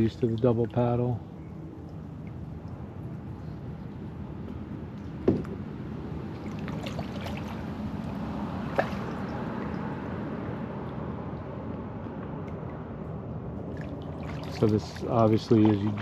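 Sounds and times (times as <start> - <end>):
water dripping and trickling: 0.0 - 4.1, 6.2 - 10.3, 12.2 - 16.0
paddle strokes: 13.6 - 16.0.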